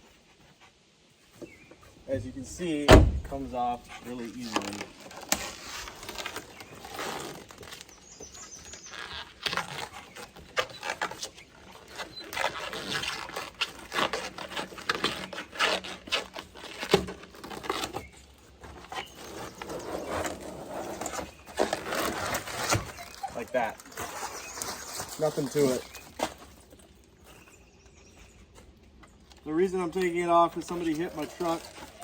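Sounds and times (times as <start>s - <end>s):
rubber coating ripping off: 8.7s - 18.2s.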